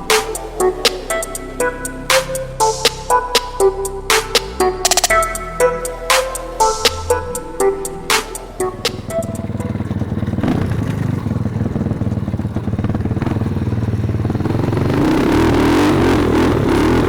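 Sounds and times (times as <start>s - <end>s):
pit bike engine revving: 8.6s - 17.0s.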